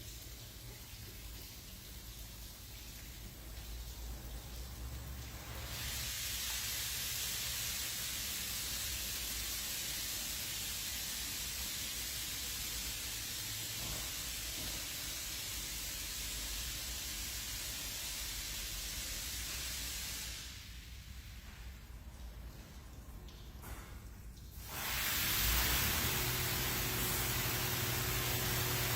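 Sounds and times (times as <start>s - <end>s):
high-pressure water jets hissing: 5.4s - 20.6s, 24.6s - 28.9s.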